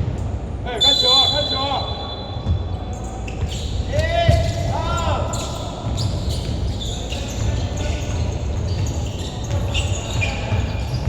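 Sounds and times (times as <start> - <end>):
sneakers squeaking on court: 0.8 - 11.0
basketball dribbling thuds: 2.4 - 11.0.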